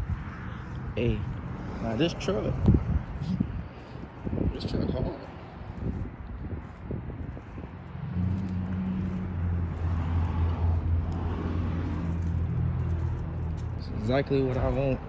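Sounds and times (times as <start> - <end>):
vehicle engine running: 7.2 - 15.0.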